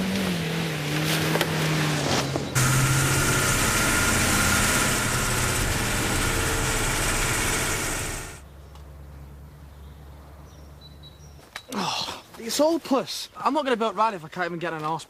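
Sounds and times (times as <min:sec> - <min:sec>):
police car engine and road noise: 0:00.0 - 0:09.6
low hum: 0:02.6 - 0:08.4.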